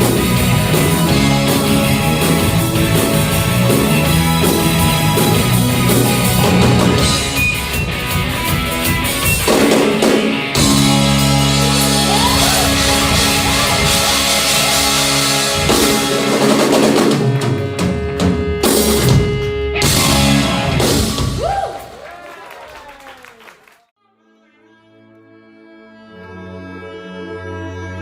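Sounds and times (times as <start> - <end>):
electric guitar: 0.0 - 21.8
rock band playing live: 0.0 - 21.9
drum kit: 0.0 - 22.0.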